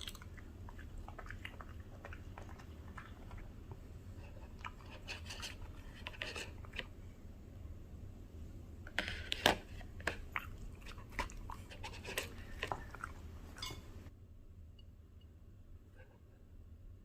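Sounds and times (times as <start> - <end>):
dog chewing crunchy food: 0.0 - 6.9, 9.0 - 13.7.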